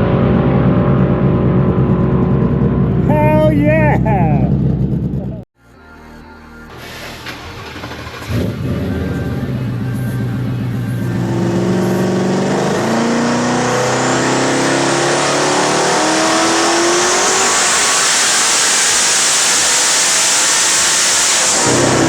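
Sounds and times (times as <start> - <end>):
car engine accelerating through gears: 6.7 - 22.0
rushing noise: 6.7 - 22.0.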